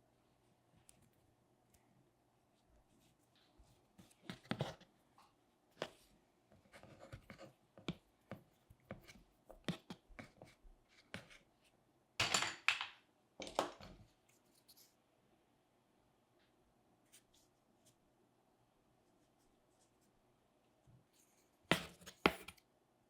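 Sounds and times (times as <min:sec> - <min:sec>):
sculpting tools tapping and scraping clay: 0:03.4 - 0:04.9, 0:05.8 - 0:11.5, 0:21.7 - 0:22.6.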